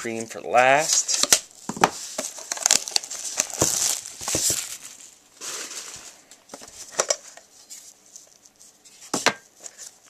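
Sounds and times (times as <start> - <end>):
plastic wrapping crinkling: 0.7 - 10.0
cardboard being handled: 0.8 - 8.0.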